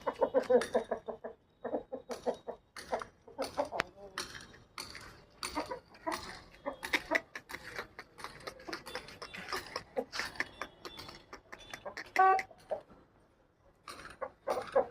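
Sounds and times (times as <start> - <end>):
rooster scuffs and clicks: 5.6 - 13.0.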